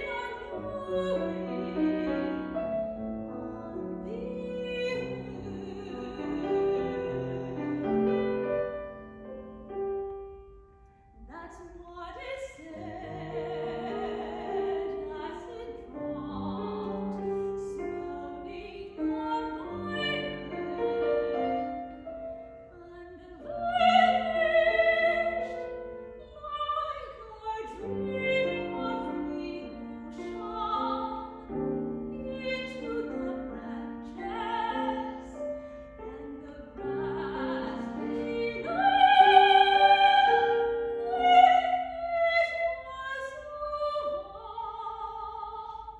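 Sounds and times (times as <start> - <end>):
piano accompaniment: 0.0 - 11.0, 12.8 - 43.2
operatic singing: 36.1 - 45.8.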